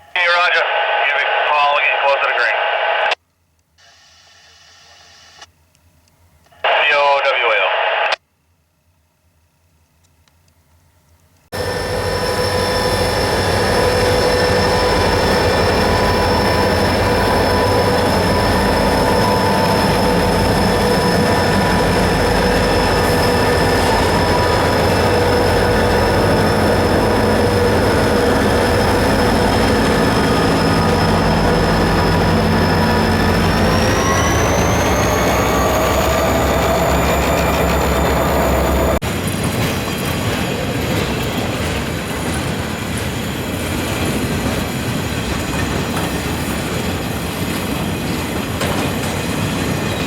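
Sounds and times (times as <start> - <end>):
high steady whine: 6.5 - 8.2
freight train rumbling past: 11.6 - 50.0.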